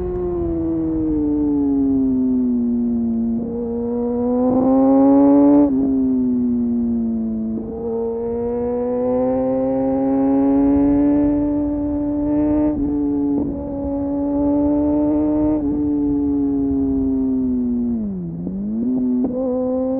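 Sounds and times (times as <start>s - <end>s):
motorcycle engine revving: 0.0s - 19.9s.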